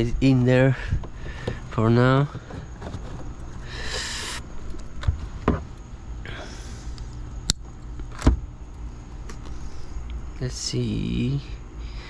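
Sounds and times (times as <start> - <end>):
scraping rustle: 1.0 - 5.8.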